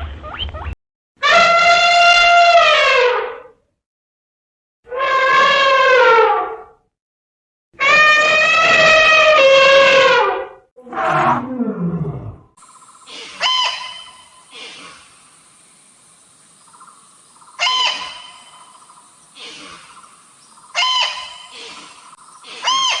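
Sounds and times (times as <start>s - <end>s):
steady hiss: 14.1s - 17.6s.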